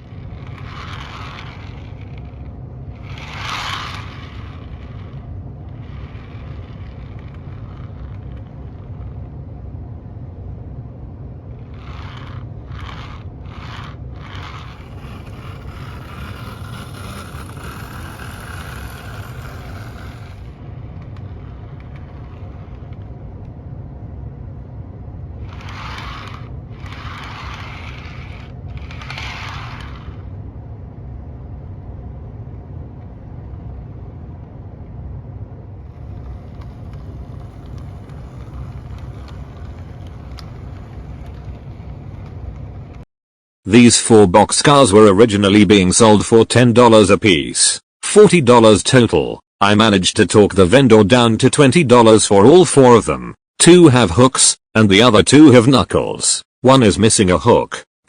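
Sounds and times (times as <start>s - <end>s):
scraping noise: 0.0s - 9.3s, 11.5s - 23.3s, 25.4s - 30.4s, 35.8s - 43.1s
model train wheels rumbling: 0.0s - 9.7s, 11.4s - 23.6s, 25.3s - 30.4s, 35.8s - 43.0s.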